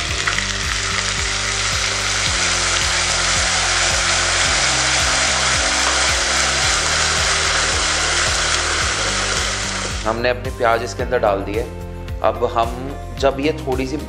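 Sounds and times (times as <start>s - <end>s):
onion paste sizzling in oil: 0.0s - 10.1s.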